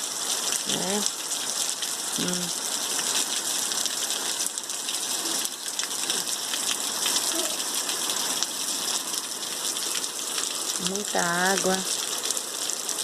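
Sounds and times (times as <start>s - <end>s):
rain on plants and ground: 0.0s - 13.0s.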